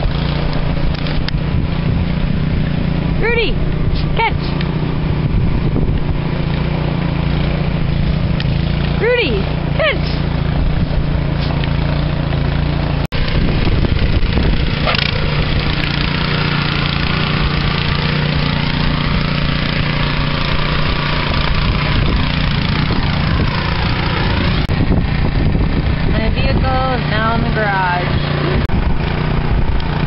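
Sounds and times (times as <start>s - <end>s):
engine running with low hum: 0.0s - 30.0s.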